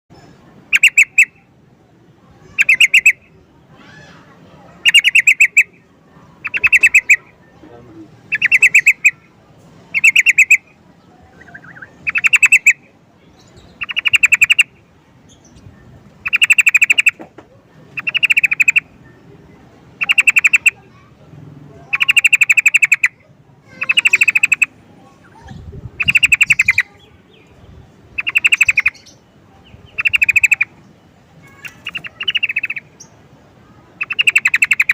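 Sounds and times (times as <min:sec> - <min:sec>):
bird rapid chattering call: 0:00.7 - 0:01.4, 0:02.4 - 0:03.3, 0:04.8 - 0:05.8, 0:06.4 - 0:07.4, 0:08.2 - 0:09.3, 0:09.9 - 0:15.6, 0:16.2 - 0:17.3, 0:17.9 - 0:19.0, 0:20.0 - 0:21.0, 0:21.8 - 0:27.5, 0:28.1 - 0:30.8, 0:31.4 - 0:33.2, 0:34.0 - 0:34.9.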